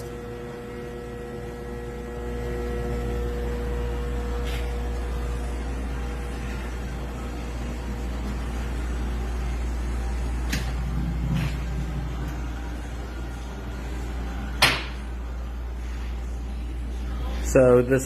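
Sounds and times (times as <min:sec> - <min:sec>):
valve seat cutting machine: 0:00.0 - 0:08.0.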